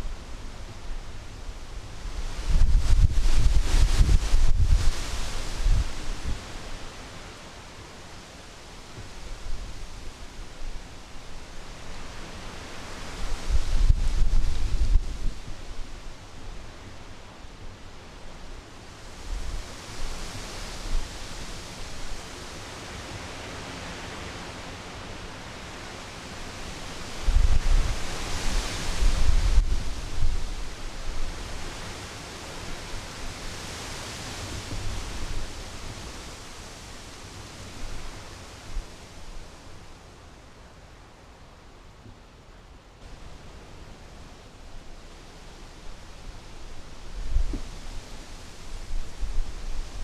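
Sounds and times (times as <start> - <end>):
wind gusting on microphone: 0.0 - 7.0, 12.1 - 16.8, 27.0 - 32.1, 45.0 - 50.0.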